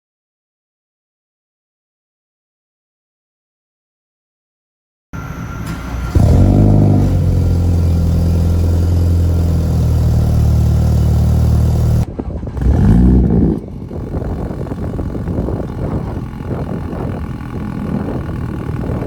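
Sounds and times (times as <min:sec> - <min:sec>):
car engine idling: 0:05.2 - 0:19.0
engine revving: 0:05.6 - 0:19.0.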